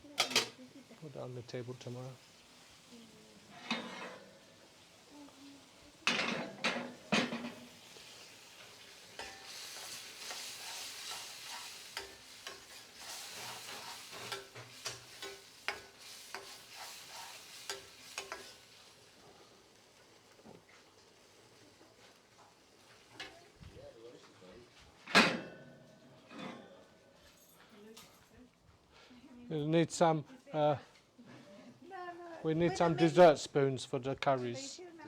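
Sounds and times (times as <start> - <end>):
food sizzling in a pan: 0.0 - 27.6
utensil scraping metal pan: 3.5 - 4.4, 9.1 - 18.6.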